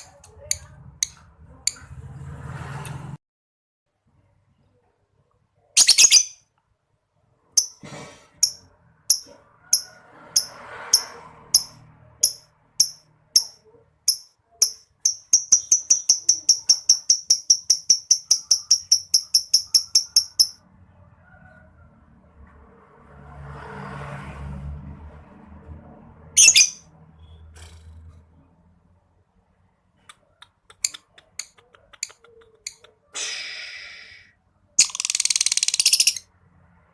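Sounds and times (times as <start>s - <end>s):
lovebird chirping: 5.6s - 6.5s, 10.4s - 20.6s, 26.4s - 27.4s, 34.8s - 36.3s.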